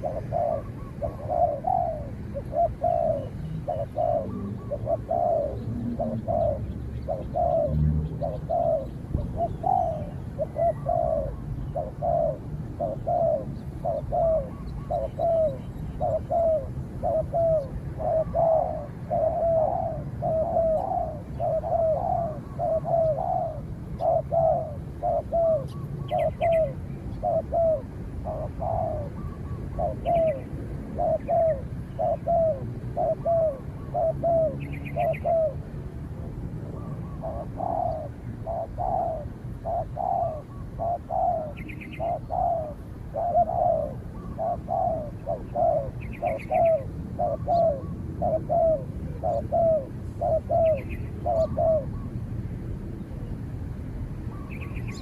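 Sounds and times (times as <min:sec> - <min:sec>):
doves cooing: 0:00.0 - 0:52.2
small bird chirping: 0:54.4 - 0:55.0.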